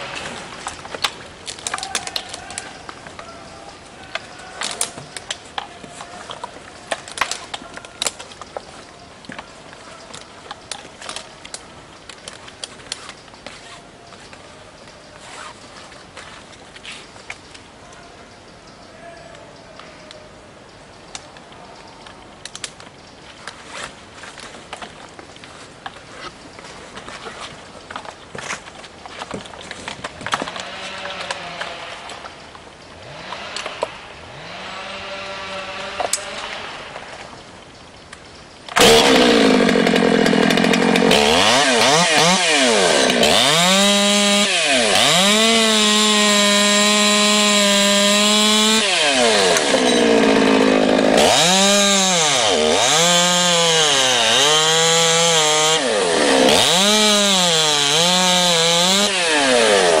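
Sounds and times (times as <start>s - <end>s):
chainsaw cutting wood: 30.1s - 32.3s, 33.0s - 37.0s, 38.7s - 60.0s.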